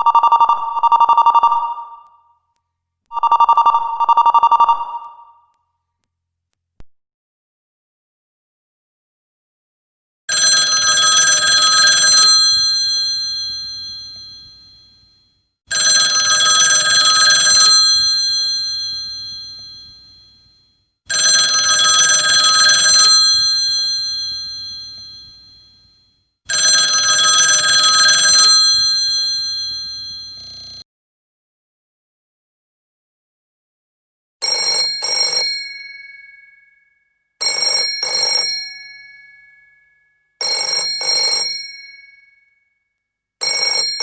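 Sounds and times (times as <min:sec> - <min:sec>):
telephone bell ringing: 0:00.0 - 0:02.2, 0:03.1 - 0:05.4, 0:10.3 - 0:15.1, 0:15.7 - 0:25.9, 0:26.5 - 0:30.8, 0:34.4 - 0:42.6, 0:43.4 - 0:44.0.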